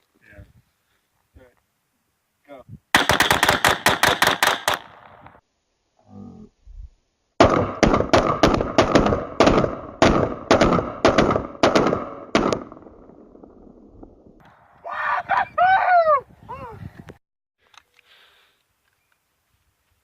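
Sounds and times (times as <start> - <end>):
rapid gunfire with echo: 2.9 - 5.2, 7.4 - 12.8.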